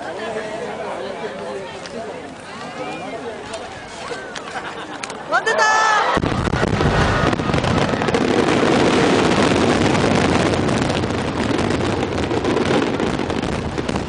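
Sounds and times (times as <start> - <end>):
fireworks bursts and crackles: 6.2 - 14.0.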